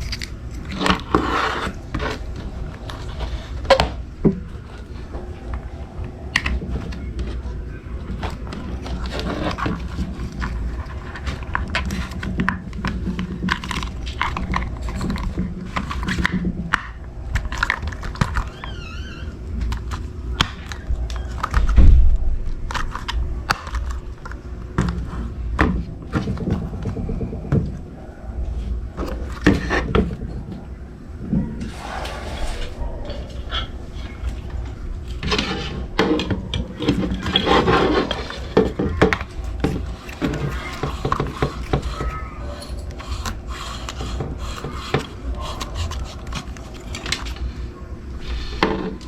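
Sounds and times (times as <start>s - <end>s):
clicks knocks and scrapes: 0.0s - 27.8s, 29.0s - 47.6s.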